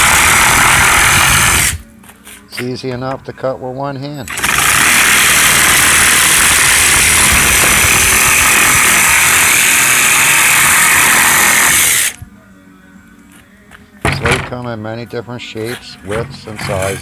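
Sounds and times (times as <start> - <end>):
power drill cutting slate: 0.0 - 1.8, 4.3 - 12.2.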